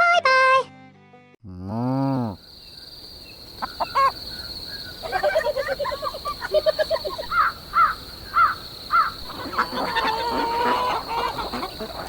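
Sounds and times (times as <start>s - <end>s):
bird calling: 2.4s - 12.0s.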